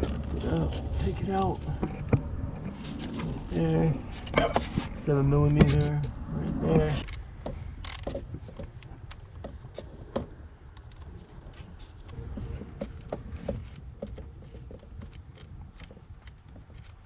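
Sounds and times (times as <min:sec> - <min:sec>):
socket ratchet clicking: 0:07.8 - 0:08.1.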